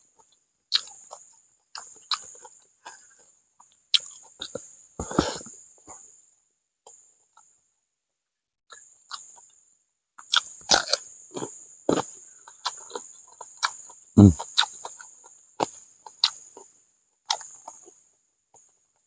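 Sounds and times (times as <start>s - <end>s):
crunchy vegetables chewing: 0.2s - 6.0s, 8.7s - 9.5s, 10.2s - 18.0s.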